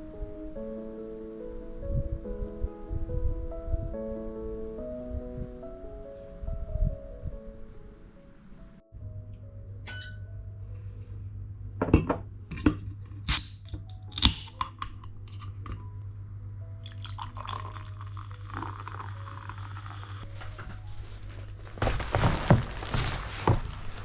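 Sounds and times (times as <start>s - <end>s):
items knocking on hard surface: 11.8s - 12.8s
plastic packaging rustling: 20.2s - 24.0s.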